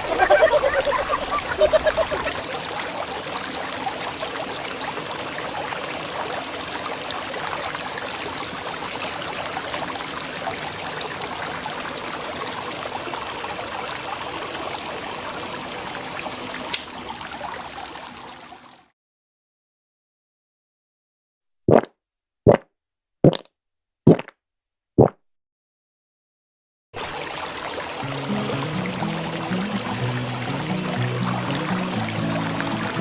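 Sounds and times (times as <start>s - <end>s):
sharp click: 16.7s - 17.0s
water pouring: 27.0s - 33.0s.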